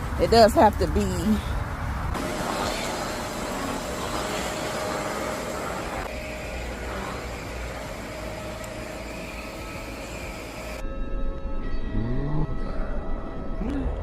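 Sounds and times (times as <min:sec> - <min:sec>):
motor vehicle rumble with hiss: 0:00.0 - 0:10.8.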